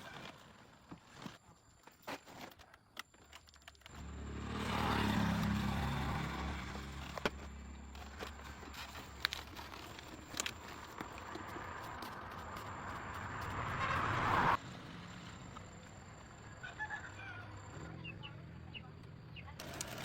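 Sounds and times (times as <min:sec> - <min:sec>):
vehicle engine running: 0:03.9 - 0:16.6.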